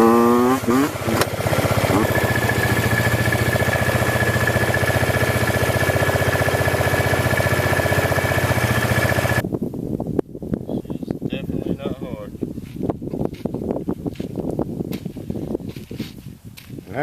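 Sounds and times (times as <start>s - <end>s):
small engine idling: 0.7s - 9.4s.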